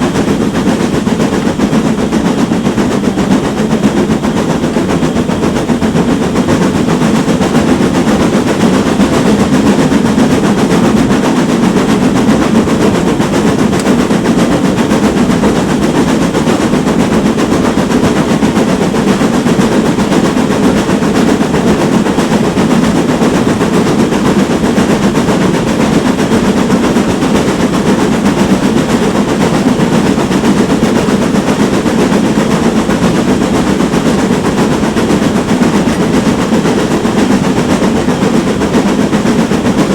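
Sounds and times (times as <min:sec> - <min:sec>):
steam locomotive exhaust barking: 0:00.0 - 0:39.9
train rumble: 0:00.0 - 0:39.9.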